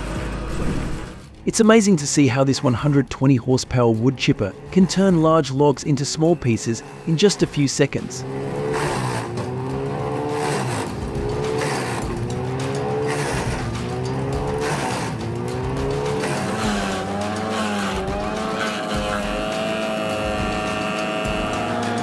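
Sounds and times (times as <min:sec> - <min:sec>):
wood chipper engine under load: 0:08.1 - 0:22.0.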